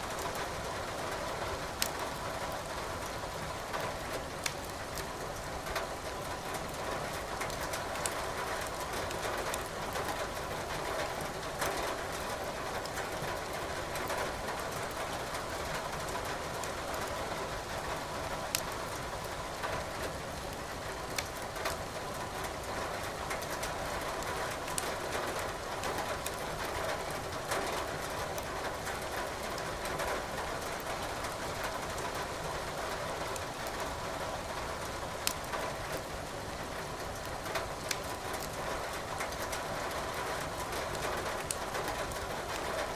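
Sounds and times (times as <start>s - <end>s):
firewood crackling in fireplace: 1.8s - 2.0s, 4.4s - 5.1s, 18.5s - 18.7s, 21.1s - 21.8s, 25.7s - 26.4s, 35.2s - 36.1s, 37.2s - 38.6s, 40.9s - 42.7s.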